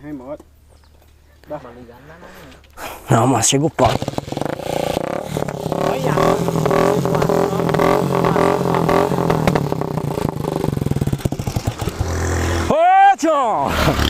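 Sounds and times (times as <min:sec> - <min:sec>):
small motorcycle engine revving: 0:03.8 - 0:12.7, 0:13.6 - 0:14.0.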